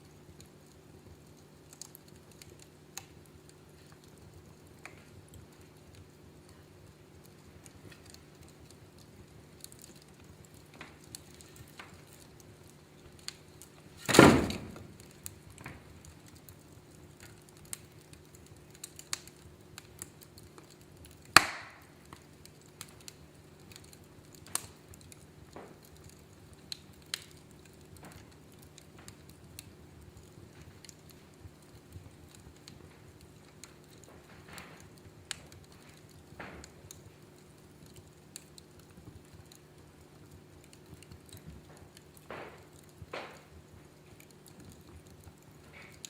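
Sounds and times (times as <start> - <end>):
wood fire crackling: 0.0 - 46.0
loud fire pops: 7.2 - 46.0.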